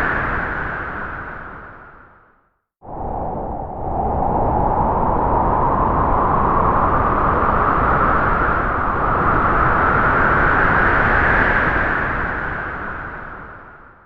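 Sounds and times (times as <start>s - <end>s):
wind gust rushing: 2.9s - 12.9s.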